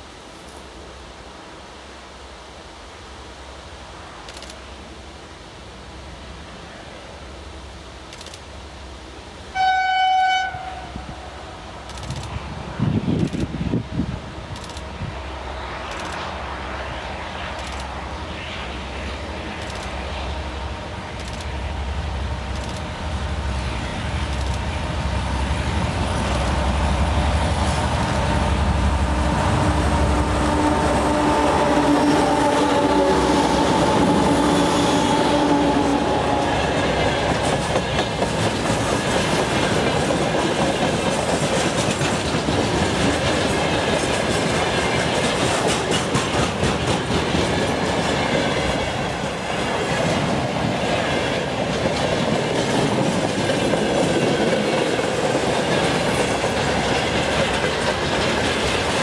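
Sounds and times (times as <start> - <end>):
diesel locomotive rumbling: 10.4 - 59.0
wheels clacking over rail joints: 35.6 - 59.0.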